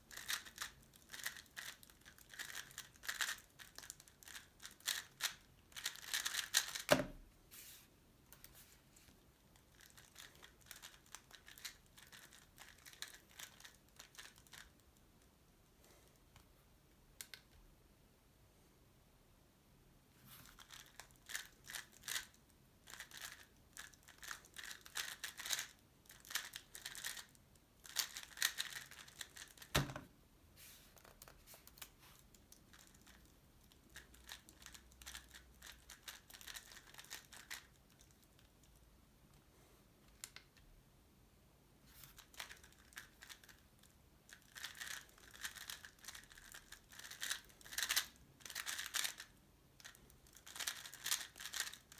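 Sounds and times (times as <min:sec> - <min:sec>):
plastic puzzle cube clicking: 0:00.1 - 0:06.9, 0:24.1 - 0:27.2, 0:27.9 - 0:29.9, 0:44.4 - 0:49.2, 0:49.8 - 0:51.9.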